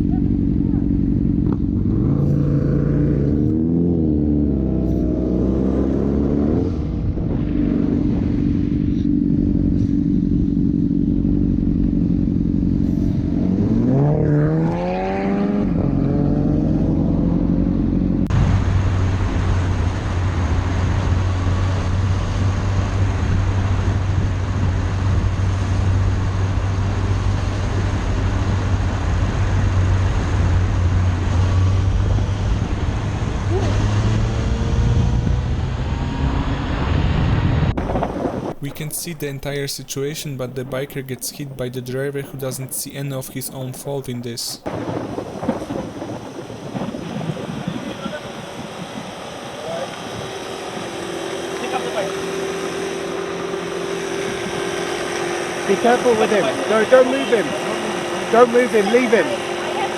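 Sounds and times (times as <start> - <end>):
motorcycle engine revving: 0.0 - 38.6, 47.8 - 59.9
motorcycle riding at speed: 0.0 - 38.6, 44.6 - 59.9
heavy wind noise: 6.5 - 10.8, 18.3 - 38.7, 44.6 - 50.5.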